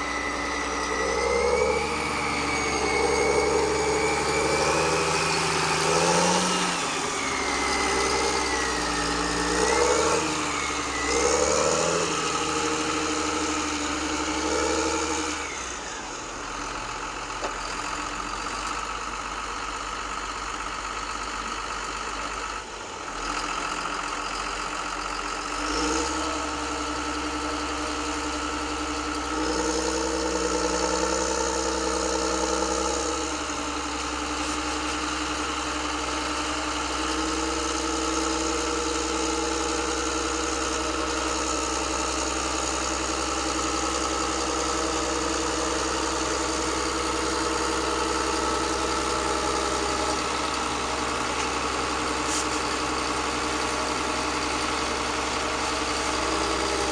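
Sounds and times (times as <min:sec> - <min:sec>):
motor whine: 0:00.0 - 0:18.1, 0:25.2 - 0:53.4
model machine engine hum: 0:00.0 - 0:56.9.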